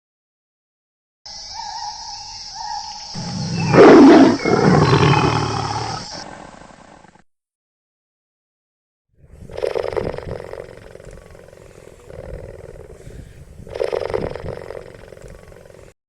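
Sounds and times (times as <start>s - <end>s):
large animal roaring: 3.2s - 7.2s.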